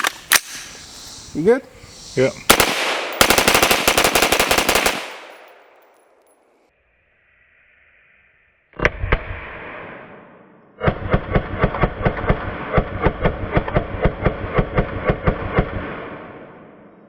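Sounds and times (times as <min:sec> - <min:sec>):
rifle shots with echo: 0:02.5 - 0:06.2.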